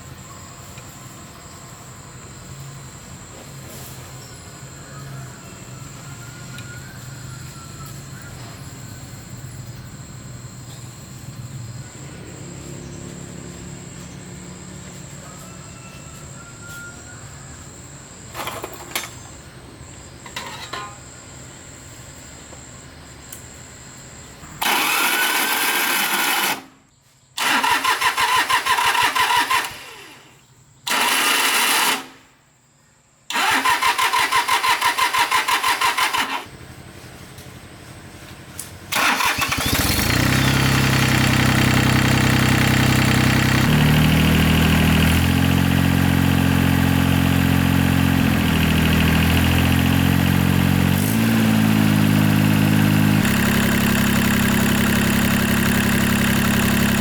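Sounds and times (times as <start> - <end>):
machine engine starting: 24.6 - 26.8, 27.4 - 32.2, 33.3 - 36.7, 38.8 - 57.0.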